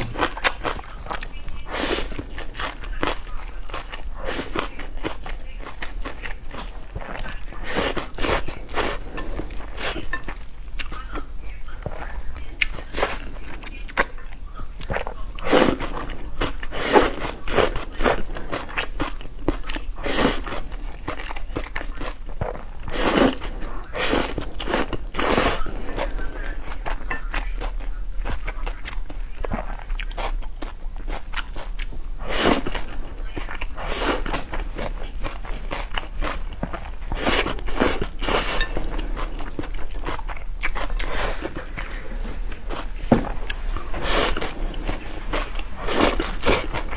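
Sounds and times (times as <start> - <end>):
chewing sounds: 0.0 - 46.9
slurping noodle soup: 1.6 - 2.8, 3.8 - 10.4, 14.9 - 26.8, 31.2 - 46.9.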